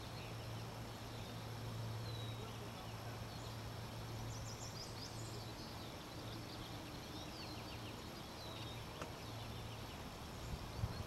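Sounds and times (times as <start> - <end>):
small birds chirping: 0.0 - 11.0
faint click: 9.0 - 9.2.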